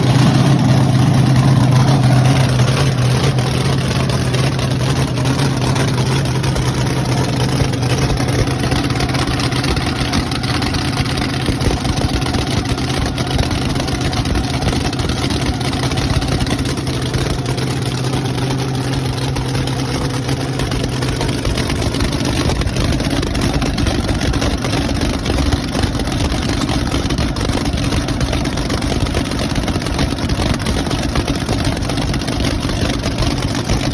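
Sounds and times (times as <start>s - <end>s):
engine running steadily: 0.0s - 33.9s
low engine drone: 0.0s - 33.9s.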